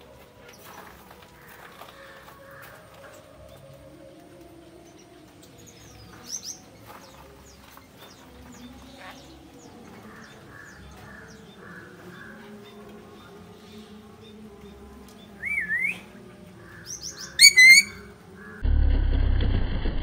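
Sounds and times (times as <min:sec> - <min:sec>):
faint bird chirps: 0:16.8 - 0:18.6.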